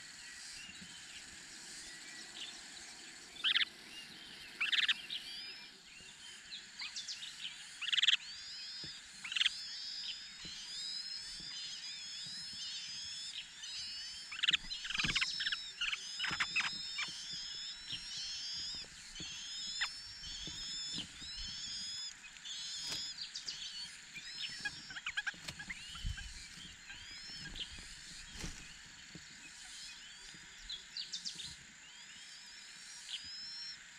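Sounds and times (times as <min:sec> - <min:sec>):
high curving bird chirps: 0:00.0 - 0:33.8
bird calling: 0:03.4 - 0:05.8, 0:07.8 - 0:31.5.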